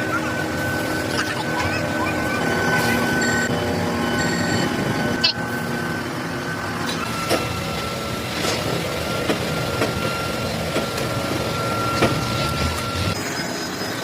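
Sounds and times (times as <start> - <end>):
machine tool whining and rumbling: 0.0 - 14.0.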